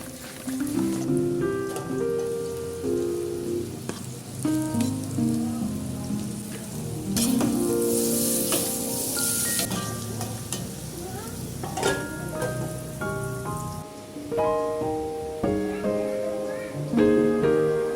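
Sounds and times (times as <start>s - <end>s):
batter sizzling in hot oil: 0.0s - 14.3s.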